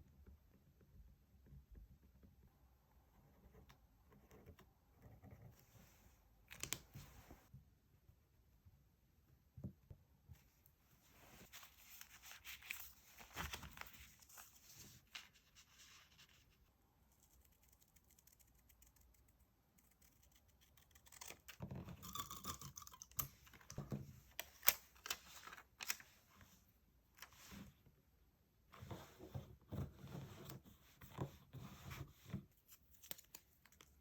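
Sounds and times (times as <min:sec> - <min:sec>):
paper rustling and scratching: 0:11.2 - 0:19.2.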